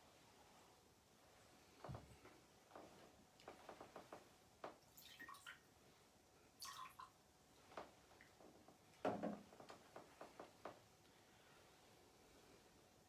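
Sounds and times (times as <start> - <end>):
liquid dripping: 4.8 - 5.6, 6.6 - 7.2.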